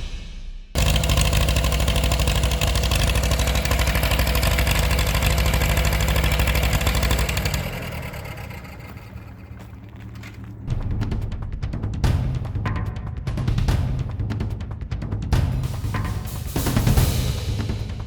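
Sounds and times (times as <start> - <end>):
tractor engine running: 0.8 - 12.3.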